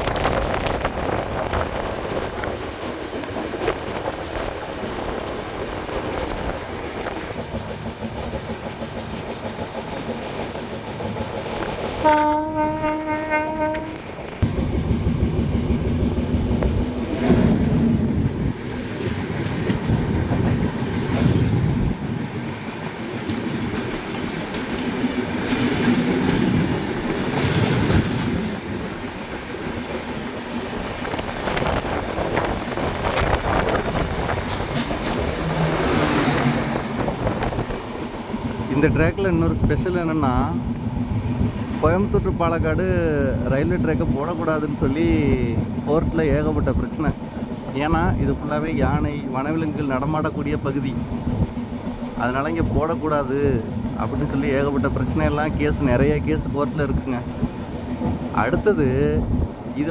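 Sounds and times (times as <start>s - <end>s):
clacks over rail joints: 0.0s - 59.9s
passenger train rumbling: 0.0s - 59.9s
locomotive horn blast: 12.0s - 14.1s.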